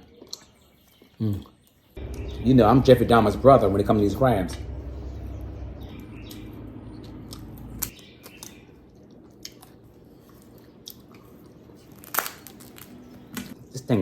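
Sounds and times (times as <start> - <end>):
low hum: 2.0 - 7.9
crab shells cracking: 10.4 - 13.6.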